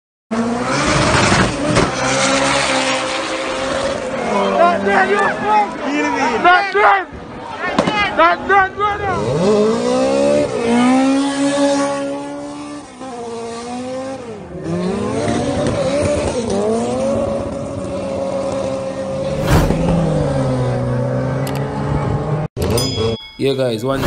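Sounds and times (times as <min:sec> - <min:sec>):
car engine revving hard: 0:00.3 - 0:04.5, 0:09.2 - 0:21.4
short burst of noise: 0:19.3 - 0:20.7.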